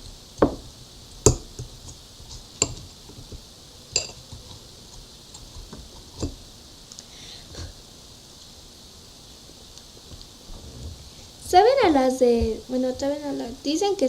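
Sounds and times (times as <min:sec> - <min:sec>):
metal fork clinking on plate: 0:03.9 - 0:04.3.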